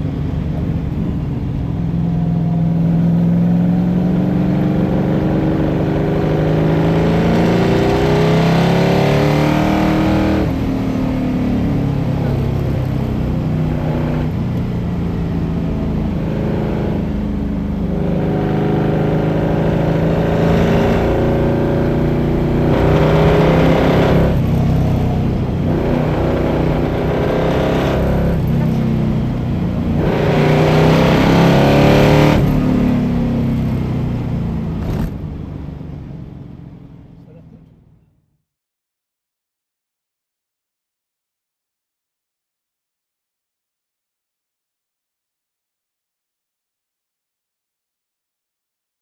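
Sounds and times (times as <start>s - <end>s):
car engine accelerating hard: 0.0s - 37.8s.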